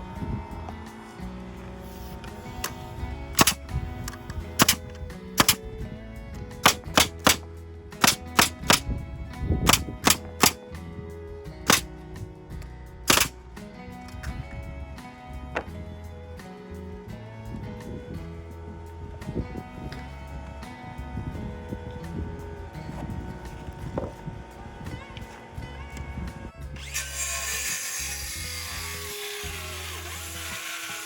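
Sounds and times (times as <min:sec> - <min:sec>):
background music: 0:00.0 - 0:31.0
hammer nailing wood: 0:03.4 - 0:03.6, 0:04.6 - 0:04.8, 0:05.4 - 0:05.6, 0:06.6 - 0:07.4, 0:08.0 - 0:08.8, 0:09.7 - 0:10.6, 0:13.1 - 0:13.3.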